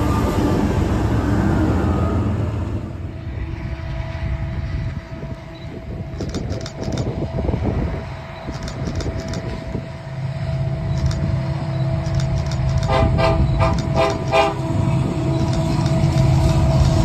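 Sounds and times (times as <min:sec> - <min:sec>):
diesel locomotives rumbling: 0:00.0 - 0:17.0
train horn short blasts: 0:12.9 - 0:14.8.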